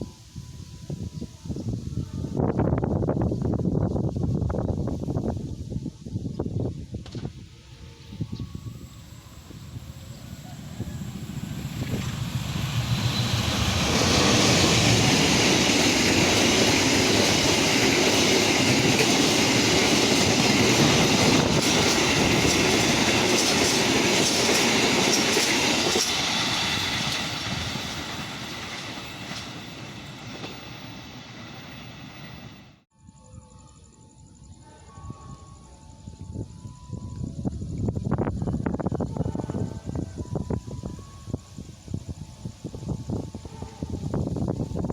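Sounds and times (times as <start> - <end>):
train wheels on rails: 8.7 - 32.8.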